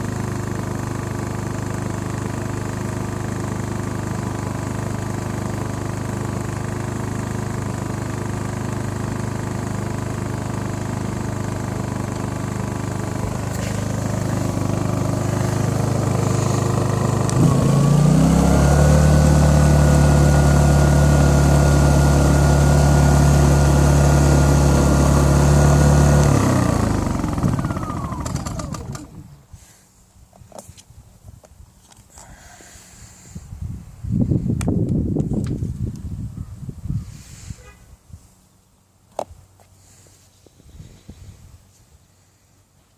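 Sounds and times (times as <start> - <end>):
generator engine running: 0.0 - 29.4.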